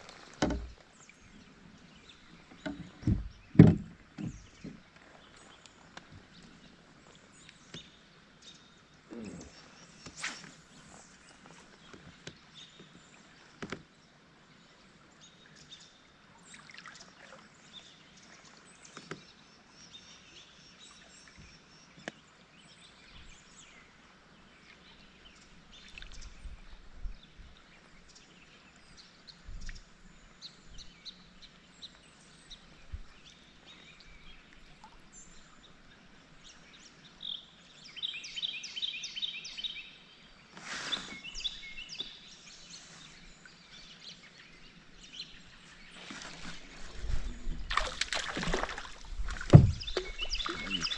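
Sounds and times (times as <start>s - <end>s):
birds calling: 45.0s - 50.9s.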